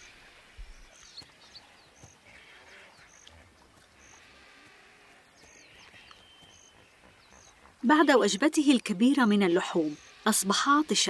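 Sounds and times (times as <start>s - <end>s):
bird chirps: 0.0s - 10.6s
soft insect buzz: 9.3s - 11.0s.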